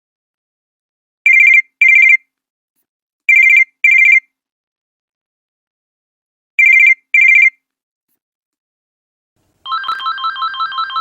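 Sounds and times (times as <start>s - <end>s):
electronic telephone ringtone: 1.3s - 2.3s, 3.3s - 4.3s, 6.6s - 7.6s, 9.7s - 11.0s.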